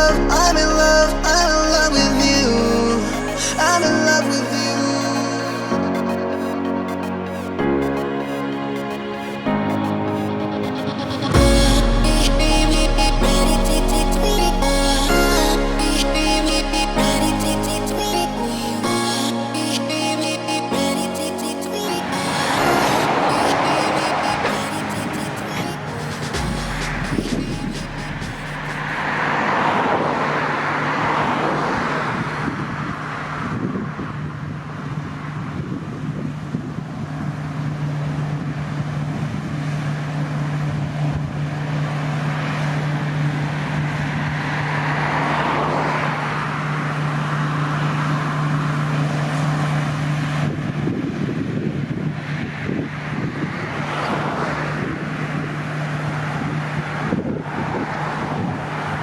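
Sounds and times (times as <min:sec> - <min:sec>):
diesel engine drone: 0:00.0 - 0:31.6
rushing mechanical noise: 0:00.0 - 0:59.0.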